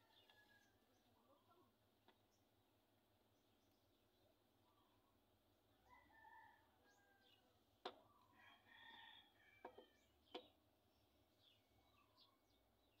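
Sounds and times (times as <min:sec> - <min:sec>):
distant bird calls: 0:03.6 - 0:05.2.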